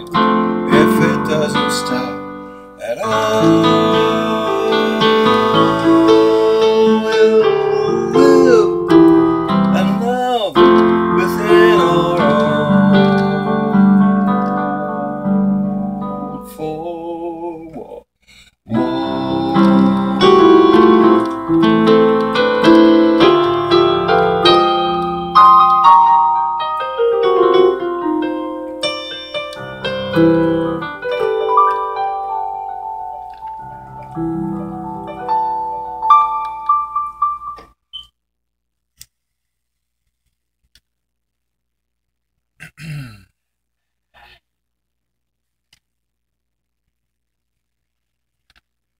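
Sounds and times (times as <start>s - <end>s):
piano-style keyboard music: 0.0s - 16.7s, 18.7s - 38.1s.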